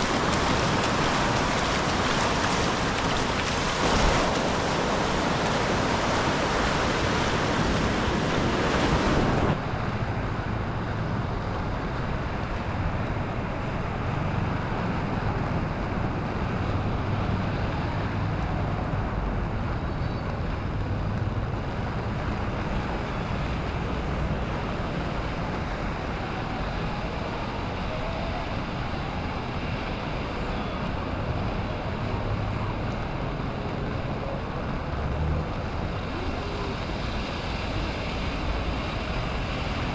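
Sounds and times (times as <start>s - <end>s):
rain hissing: 0.0s - 9.6s
breaking waves rumble: 0.0s - 39.9s
wind buffeting microphone: 0.0s - 39.9s.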